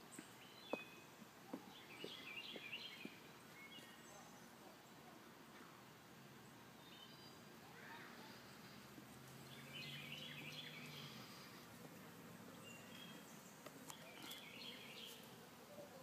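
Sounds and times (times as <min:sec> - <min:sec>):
quiet outdoor background noise: 0:00.0 - 0:16.0
bird chirping: 0:00.1 - 0:05.0, 0:06.4 - 0:07.5, 0:09.4 - 0:11.7, 0:12.4 - 0:16.0.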